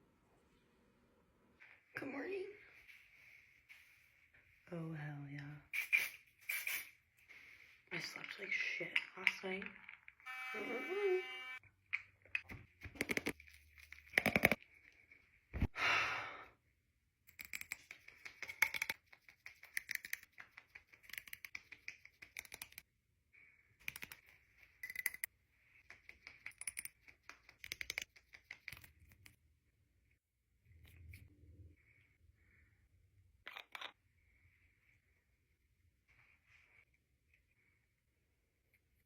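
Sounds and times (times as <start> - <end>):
small objects clicking and tapping: 11.9 - 14.6, 17.2 - 22.8, 23.8 - 29.4.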